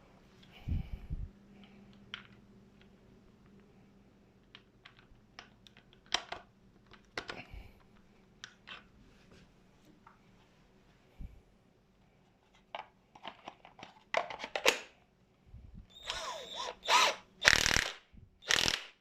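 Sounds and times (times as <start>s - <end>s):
impact wrench bursts: 16.0s - 19.0s.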